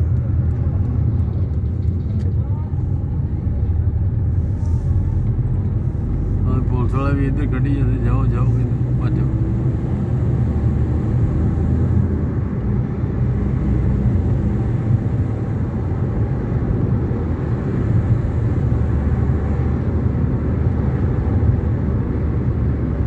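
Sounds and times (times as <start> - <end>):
convoy of vehicles rumbling: 0.0 - 23.0.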